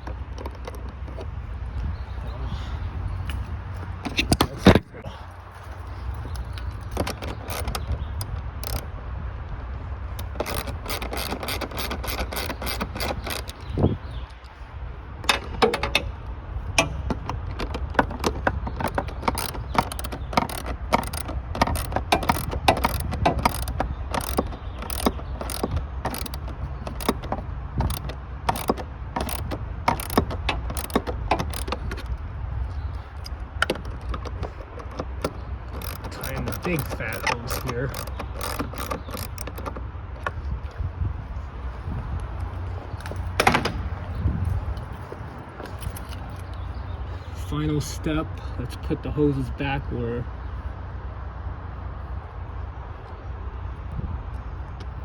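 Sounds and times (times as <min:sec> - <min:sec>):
hand ratchet clicking: 0:06.3 - 0:08.9, 0:10.2 - 0:14.5, 0:16.8 - 0:32.2, 0:32.8 - 0:40.4.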